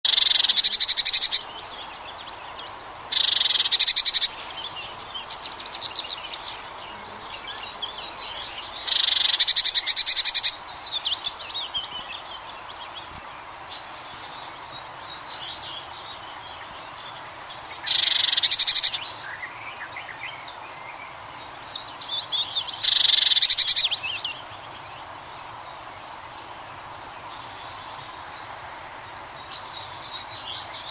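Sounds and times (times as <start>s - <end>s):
bird rapid trills: 0.0s - 1.4s, 3.1s - 4.4s, 8.8s - 10.6s, 17.7s - 19.0s, 22.7s - 24.0s
soft high bird chirps: 2.6s - 6.4s, 8.4s - 10.6s, 13.8s - 20.9s, 21.6s - 24.9s.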